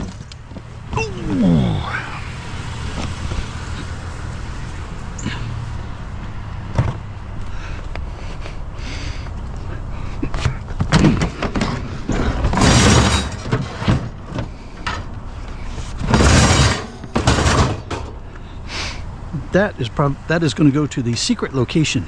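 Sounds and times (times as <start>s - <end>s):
scrap metal clattering: 10.4s - 18.2s.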